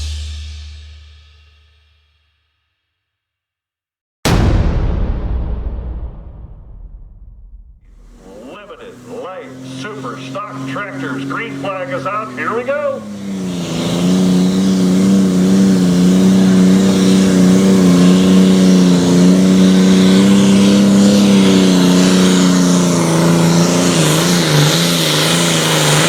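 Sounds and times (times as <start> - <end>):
tractor diesel engine under load: 7.9 - 26.0.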